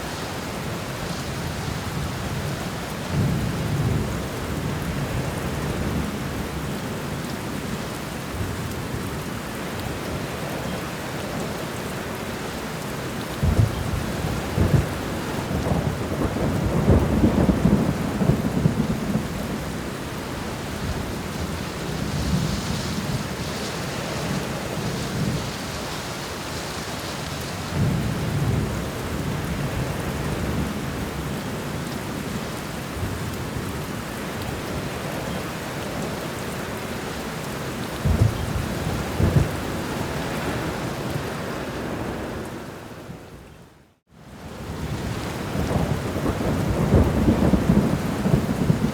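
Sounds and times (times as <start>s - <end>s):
heavy rain: 0.0s - 48.9s
low thunder rumbling: 13.4s - 25.6s, 38.0s - 40.9s, 44.6s - 48.9s.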